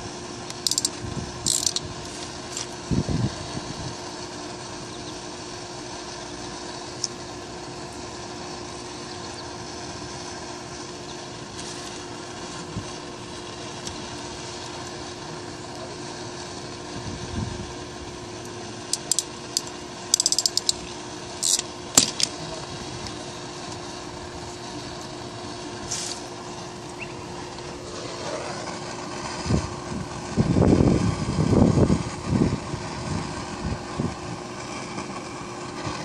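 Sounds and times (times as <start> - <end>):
steady hum: 0.0 - 36.0
hand tool ratcheting clicks: 0.5 - 1.8, 18.9 - 20.8, 21.4 - 22.3
short hiss: 25.8 - 26.3.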